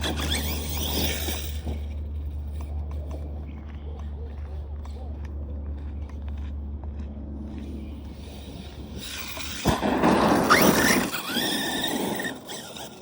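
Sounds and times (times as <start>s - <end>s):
high-pitched squeal: 0.0s - 2.1s, 7.9s - 13.0s
rc car motor whine: 0.0s - 2.7s, 7.6s - 13.0s.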